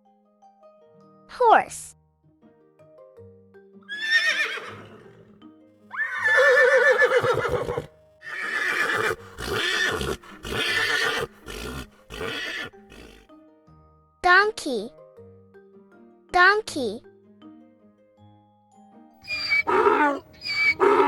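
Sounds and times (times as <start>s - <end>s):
soft background music: 0.0s - 21.0s
horse neighing: 3.9s - 13.3s, 19.3s - 21.0s.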